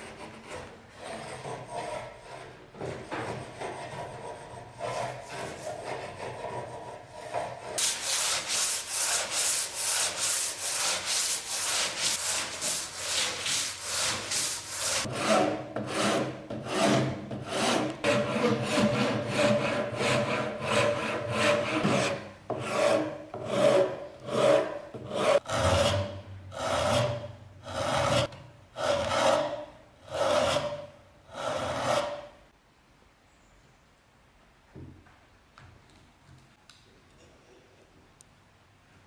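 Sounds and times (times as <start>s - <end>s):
file rasping over metal part: 3.3s - 32.3s.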